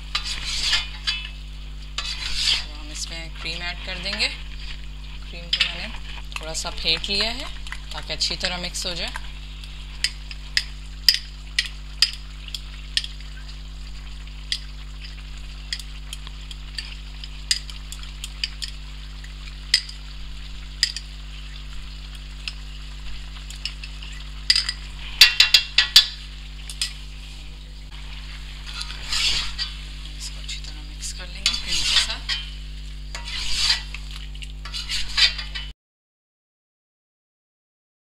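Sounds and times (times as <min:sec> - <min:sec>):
spoon scraping a wok: 0:00.0 - 0:09.3, 0:23.5 - 0:35.7
chicken sizzling in a wok: 0:00.0 - 0:35.7.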